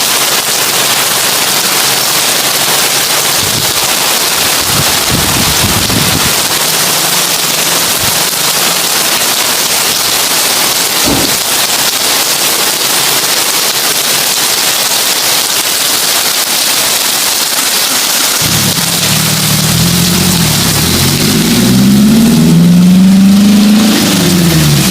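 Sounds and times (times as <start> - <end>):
heavy rain on a tin roof: 0.0 - 24.9
low thump: 11.0 - 11.5.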